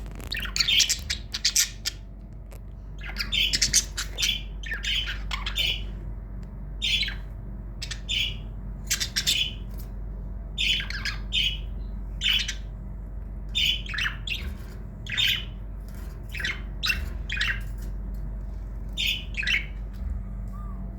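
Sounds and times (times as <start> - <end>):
budgerigar rough calls: 13.6 - 14.4.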